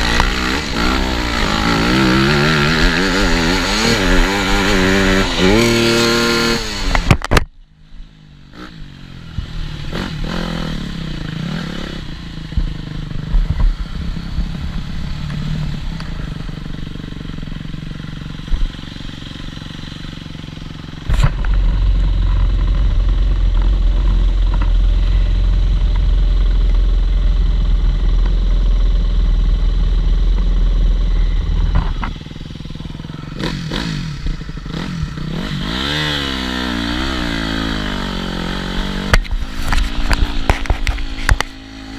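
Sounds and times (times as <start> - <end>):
motocross bike engine revving: 0.0 - 7.4, 8.4 - 41.9
heavy low rumble: 8.8 - 35.5.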